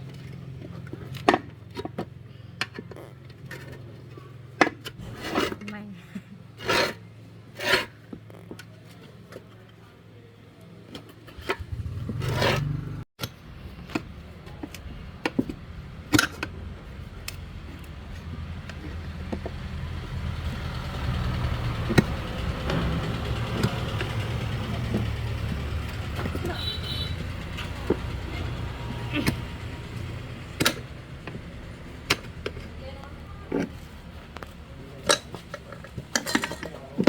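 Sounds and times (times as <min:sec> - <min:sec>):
engine rumbling: 0:11.2 - 0:37.0.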